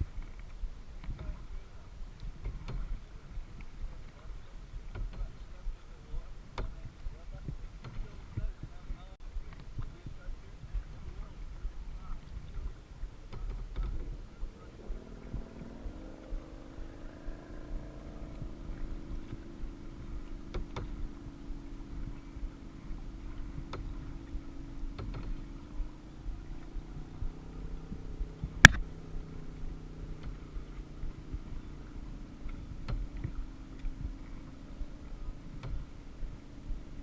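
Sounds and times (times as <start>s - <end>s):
engine hum: 0.0s - 37.0s
sharp clicks: 28.7s - 28.9s.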